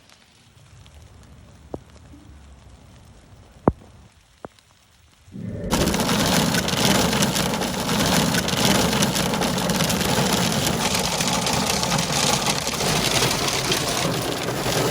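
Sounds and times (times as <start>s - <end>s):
low rumble: 5.3s - 14.9s
hailstones clattering on hard surfaces: 5.4s - 14.9s.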